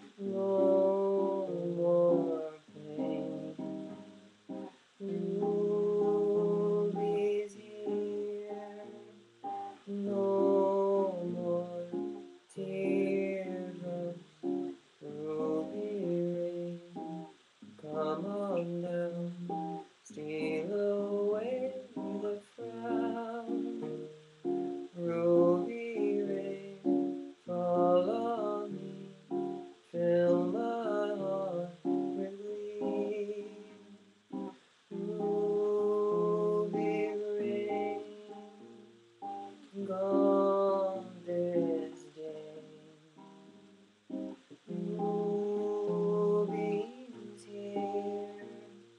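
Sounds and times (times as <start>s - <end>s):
guitar playing jazzy chords: 0.0s - 48.9s.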